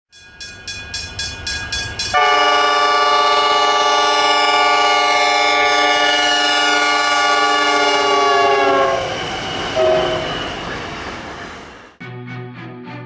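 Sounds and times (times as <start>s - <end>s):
train horn chord: 2.1s - 9.2s, 9.8s - 10.2s.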